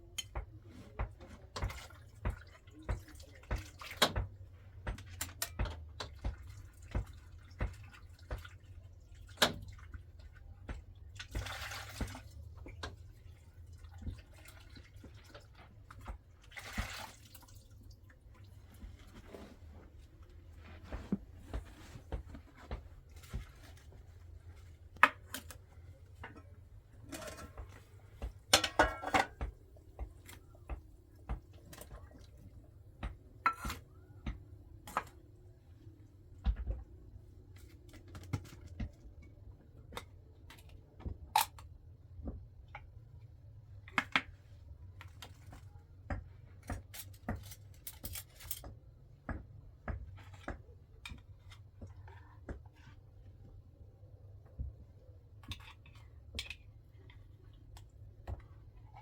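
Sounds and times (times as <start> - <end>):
objects being handled: 17.8 - 39.2
clatter of objects: 18.6 - 32.1.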